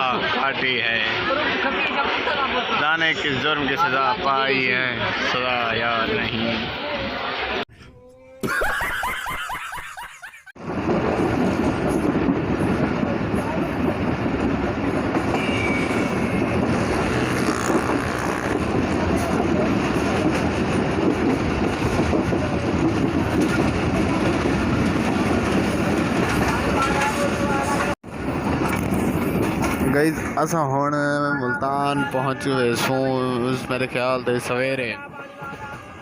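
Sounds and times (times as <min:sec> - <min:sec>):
train wheels rumbling on rails: 0:10.6 - 0:31.0.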